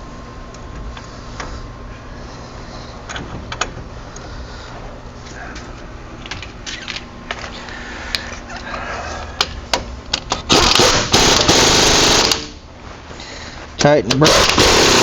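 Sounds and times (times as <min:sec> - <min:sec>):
power wrench running: 0:10.5 - 0:12.6, 0:14.1 - 0:15.0.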